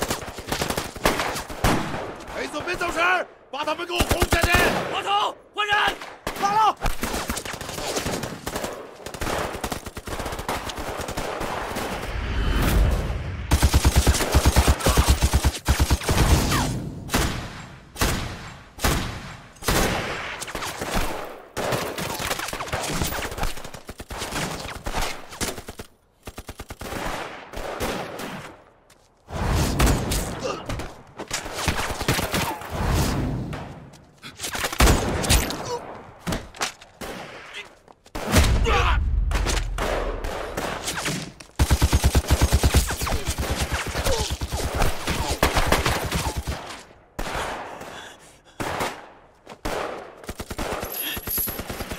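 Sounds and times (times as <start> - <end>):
machine-gun fire bursts: 13.5 - 16.5, 41.6 - 47.6, 49.6 - 51.9.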